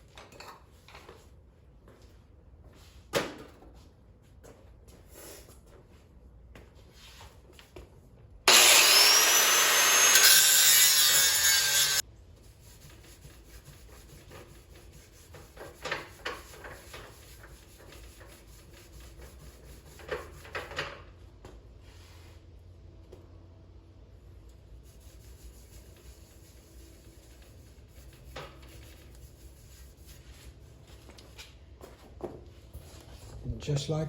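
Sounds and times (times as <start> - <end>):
power grinder grinding metal: 8.5 - 12.0.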